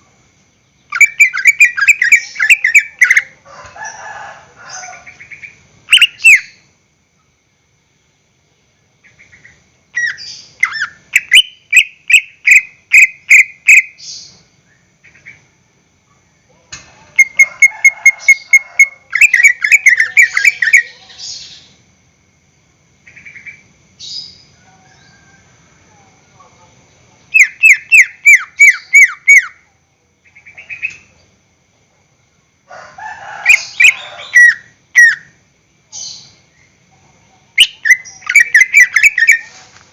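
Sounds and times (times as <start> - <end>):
bird singing: 0.0 - 4.0, 4.6 - 6.7, 8.8 - 16.6, 17.2 - 21.8, 23.0 - 25.4, 26.0 - 31.4, 33.5 - 39.6.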